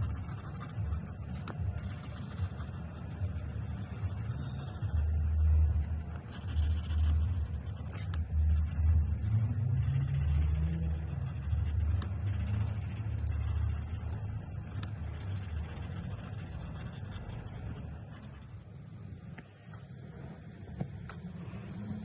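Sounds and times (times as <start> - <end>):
marker rubbing on paper: 0.0 - 18.7.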